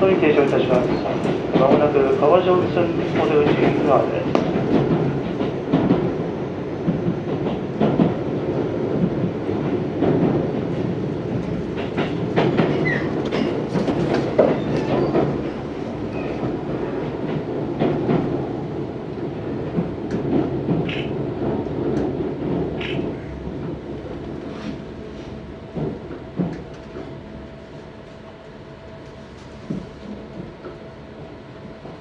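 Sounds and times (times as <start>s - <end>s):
electric train rumbling: 0.0s - 32.0s
wheels clacking over rail joints: 11.4s - 15.6s.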